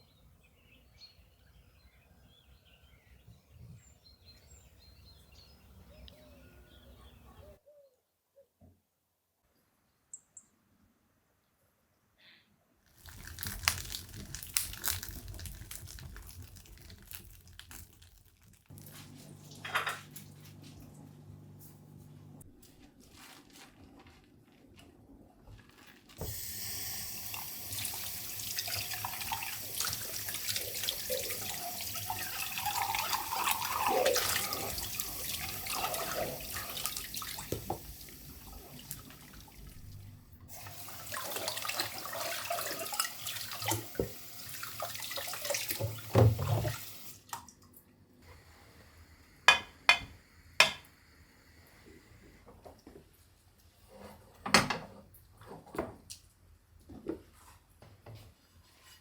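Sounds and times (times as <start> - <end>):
tap water running into sink: 26.2 - 39.9, 40.5 - 47.2.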